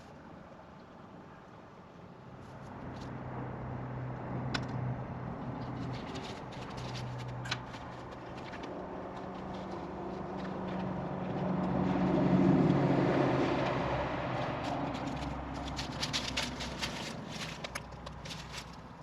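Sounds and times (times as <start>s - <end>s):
vehicle passing by: 2.4s - 19.0s
handling clicks and rustles: 4.5s - 11.8s, 13.6s - 19.0s.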